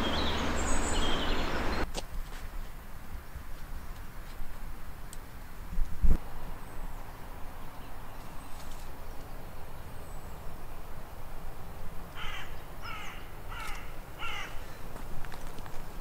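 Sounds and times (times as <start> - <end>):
bird calling: 0.0 - 1.8, 12.1 - 15.0
low steady rumble: 0.0 - 1.8.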